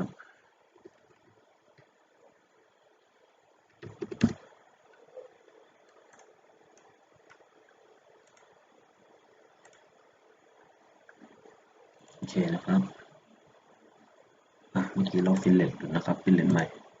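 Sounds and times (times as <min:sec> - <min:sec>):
mouse and keyboard clicks: 0:03.8 - 0:04.4.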